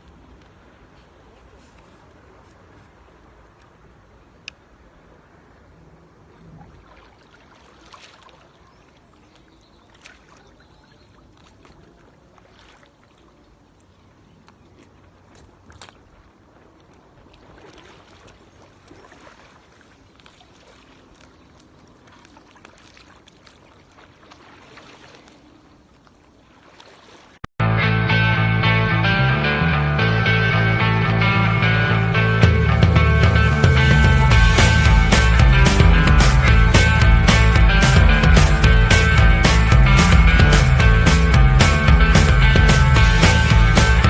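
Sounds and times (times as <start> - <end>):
paddle splashing in water: 0.0 - 27.5.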